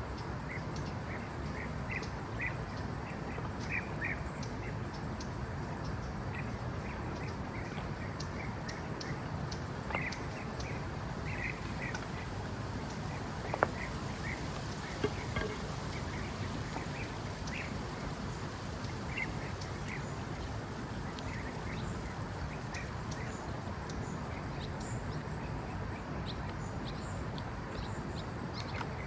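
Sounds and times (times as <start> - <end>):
steady hiss: 4.8 - 25.2.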